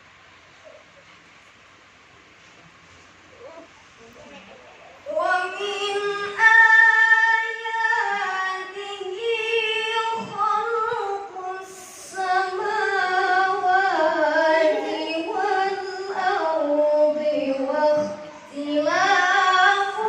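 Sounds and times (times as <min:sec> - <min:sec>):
woman reciting melodically: 0:05.0 - 0:20.0.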